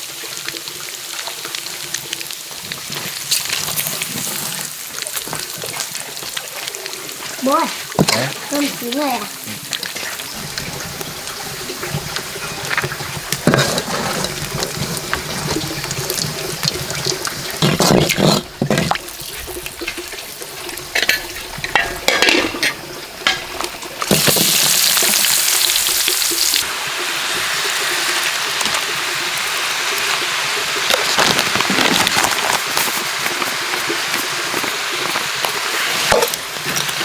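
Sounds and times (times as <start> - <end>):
water splashing and sloshing: 1.6 - 37.0
flowing water rushing: 3.2 - 37.0
cookware clinking and knocking: 20.9 - 23.5.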